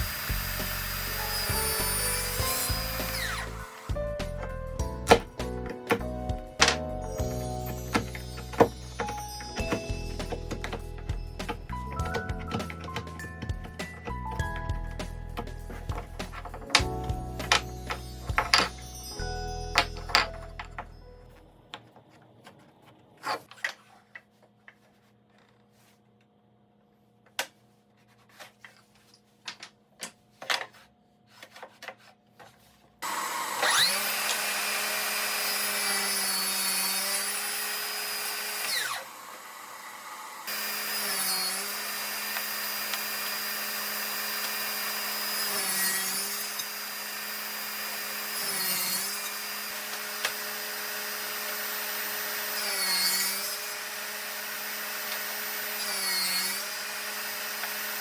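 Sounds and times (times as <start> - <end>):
power tool motor cutting wood: 0.0 - 4.0, 5.1 - 14.3, 33.0 - 58.0
handling clicks and taps: 7.8 - 18.8.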